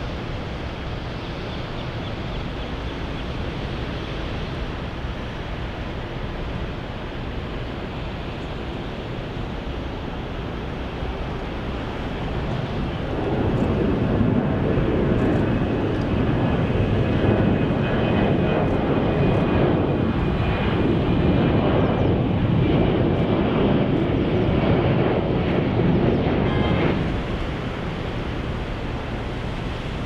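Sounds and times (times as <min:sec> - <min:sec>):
jet engines rushing: 0:00.0 - 0:30.0.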